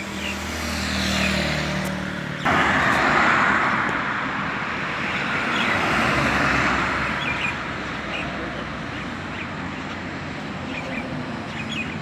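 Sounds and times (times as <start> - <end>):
loud rushing noise: 2.4 - 5.8.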